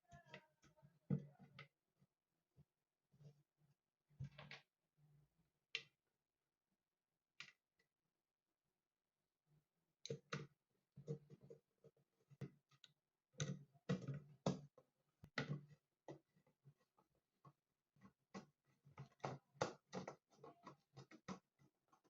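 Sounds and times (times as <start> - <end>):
hard objects clicking and knocking: 18.0 - 22.0.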